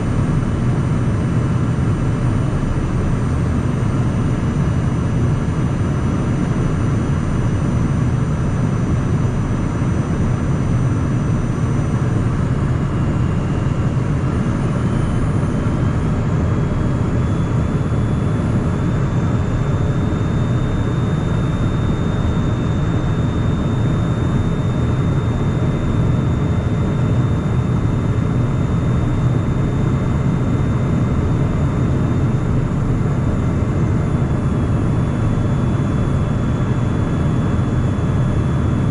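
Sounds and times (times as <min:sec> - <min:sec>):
faint high whine: 0:00.0 - 0:38.9.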